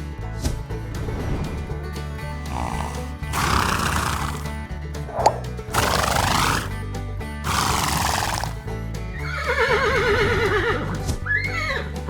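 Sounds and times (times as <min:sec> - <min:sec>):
background music: 0:00.0 - 0:12.0
horse blowing: 0:02.3 - 0:06.8, 0:07.4 - 0:08.7
horse whinnying: 0:02.4 - 0:04.6, 0:05.2 - 0:06.8, 0:07.4 - 0:08.6.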